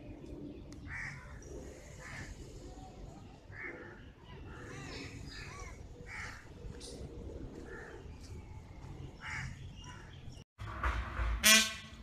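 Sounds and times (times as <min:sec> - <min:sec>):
crows cawing: 0:00.9 - 0:01.4, 0:06.1 - 0:06.4, 0:09.2 - 0:10.1.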